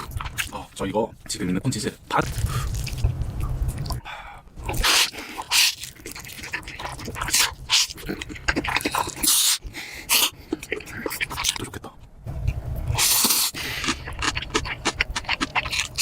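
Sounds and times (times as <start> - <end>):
slurping and chewing noodles: 4.6 - 11.8, 12.9 - 16.0.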